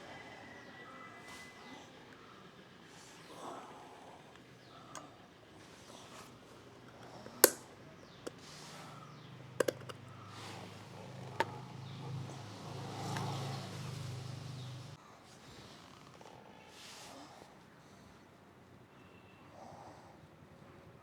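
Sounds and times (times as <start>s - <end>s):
sharp clicks and knocks: 6.9s - 8.4s, 9.6s - 10.1s.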